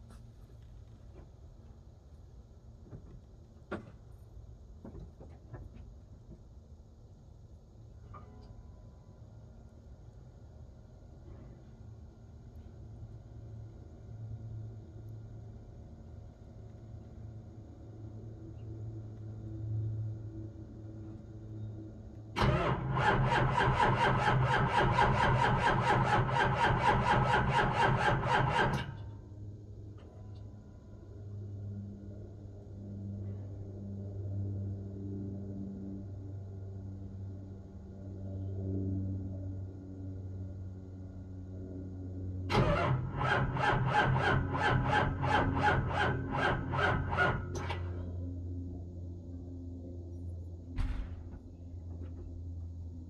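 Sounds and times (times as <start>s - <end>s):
diesel engine cranking: 22.4s - 29.0s, 42.5s - 48.0s.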